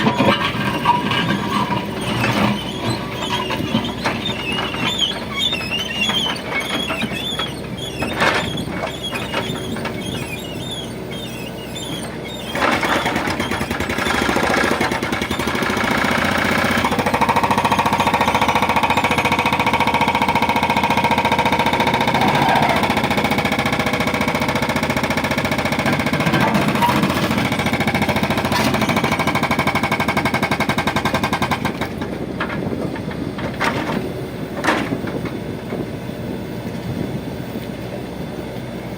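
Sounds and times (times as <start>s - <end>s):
diesel engine running under load: 0.0s - 38.9s.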